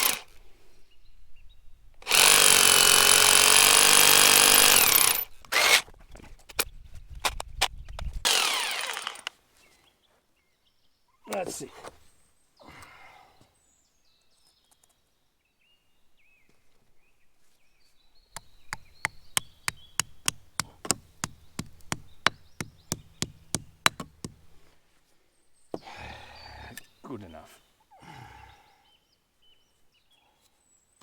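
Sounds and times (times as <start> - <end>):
rapid sharp knocks: 18.4 - 24.4.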